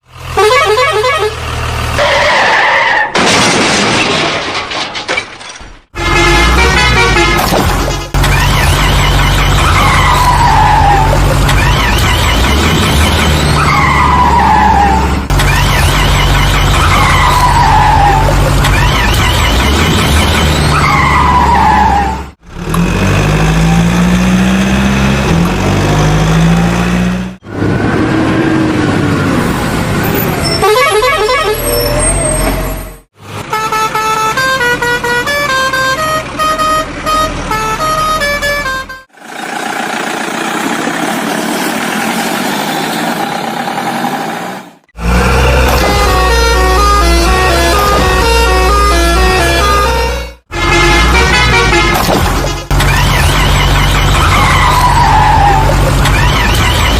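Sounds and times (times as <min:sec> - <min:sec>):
cartoon skidding noise: 0:06.7 - 0:22.3, 0:45.1 - 0:56.9
tyre squeal: 0:31.5 - 0:33.0
vehicle engine running: 0:39.2 - 0:42.1.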